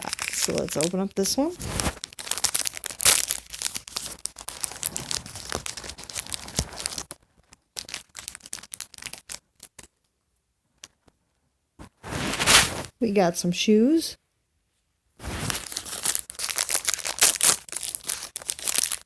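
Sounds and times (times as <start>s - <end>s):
plastic bag tearing and crinkling: 0.0s - 9.9s, 12.0s - 12.9s, 15.2s - 19.0s.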